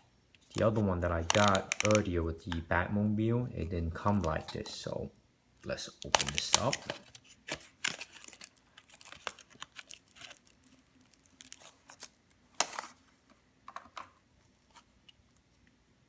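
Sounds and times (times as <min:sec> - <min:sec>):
plastic and cardboard packaging crinkling: 0:00.4 - 0:02.1, 0:05.8 - 0:13.2.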